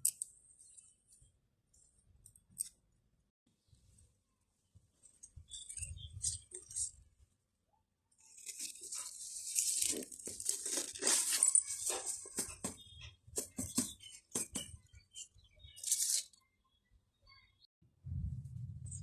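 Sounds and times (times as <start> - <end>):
rustling and crackling: 8.2 - 12.8.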